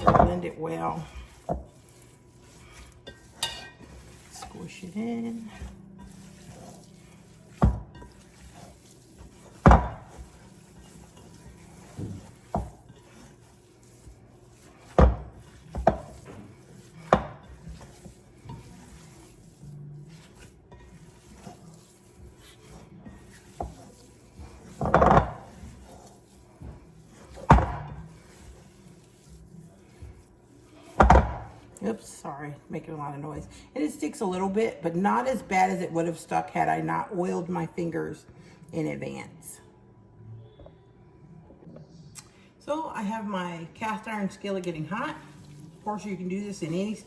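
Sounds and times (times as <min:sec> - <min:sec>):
mixing bowl knocking on counter: 0:00.0 - 0:00.6, 0:07.4 - 0:13.5, 0:14.5 - 0:19.5, 0:20.1 - 0:26.0, 0:26.6 - 0:28.7, 0:30.9 - 0:31.6.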